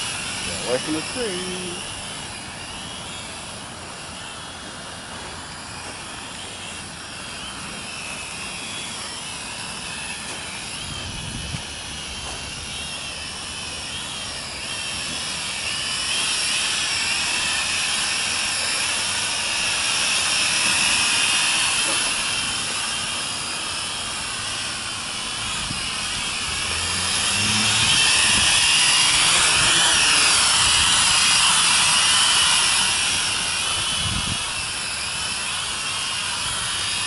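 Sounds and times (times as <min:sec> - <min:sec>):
drone propellers whining: 0:00.0 - 0:37.0
wind buffeting microphone: 0:10.8 - 0:12.5, 0:27.4 - 0:31.3, 0:33.3 - 0:34.7.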